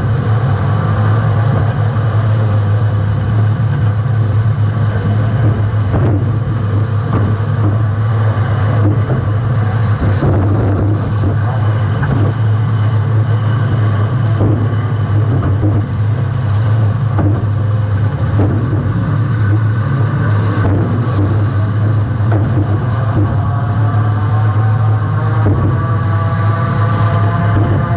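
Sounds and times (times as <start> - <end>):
car engine running loud: 0.0 - 27.9
knocks and thuds from hits: 5.4 - 7.9, 8.6 - 12.5, 14.0 - 16.0, 17.0 - 19.8, 20.4 - 23.6, 25.4 - 26.0.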